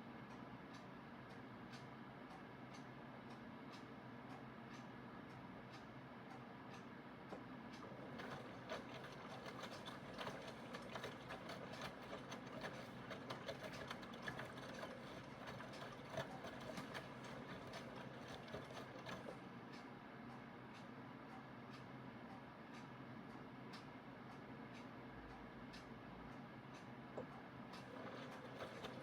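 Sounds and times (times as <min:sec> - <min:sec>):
washing machine motor hum: 0:07.6 - 0:19.6, 0:27.2 - 0:29.0.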